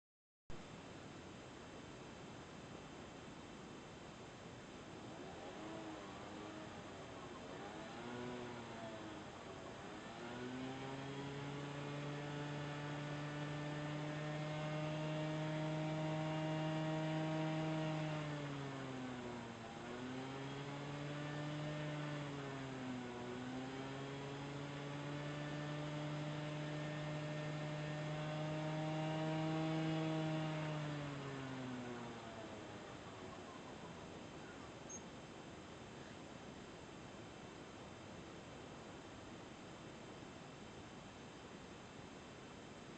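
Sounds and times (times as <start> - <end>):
scooter engine revving: 5.1 - 33.3.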